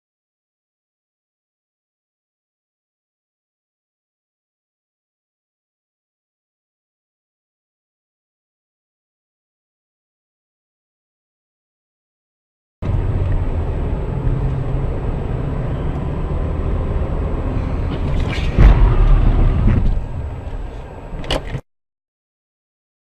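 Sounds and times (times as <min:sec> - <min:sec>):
car engine and road rumble: 0:12.8 - 0:21.6
collision impact: 0:17.9 - 0:21.4.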